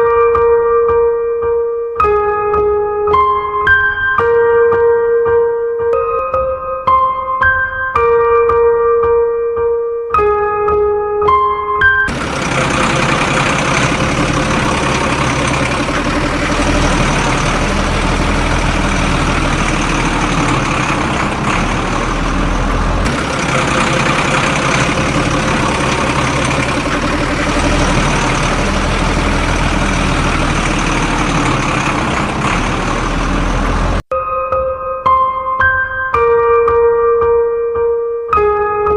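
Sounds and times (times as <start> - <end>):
heavy diesel engine running: 12.1 - 34.1.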